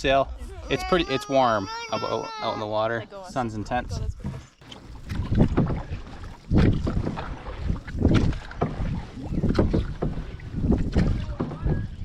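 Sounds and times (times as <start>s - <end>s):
paddle strokes splashing water: 3.3s - 12.0s
wind buffeting microphone: 3.4s - 12.0s.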